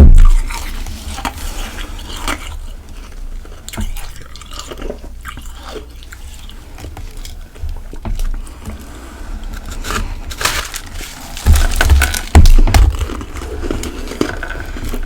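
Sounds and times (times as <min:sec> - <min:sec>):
heavy low thump: 0:00.0 - 0:00.5, 0:11.5 - 0:13.2
ice crunching while chewed: 0:00.0 - 0:15.0.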